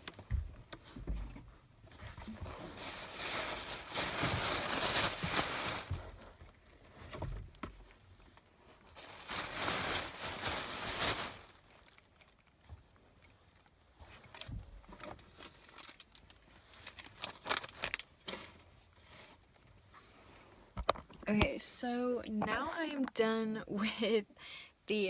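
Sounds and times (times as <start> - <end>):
plastic rubbish rustling: 1.9 - 12.7.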